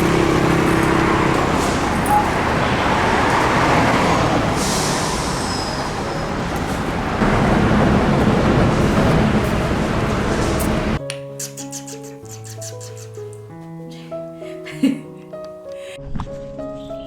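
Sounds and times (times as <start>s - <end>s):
road traffic noise: 0.0s - 11.0s
vehicle engine humming: 0.0s - 11.0s.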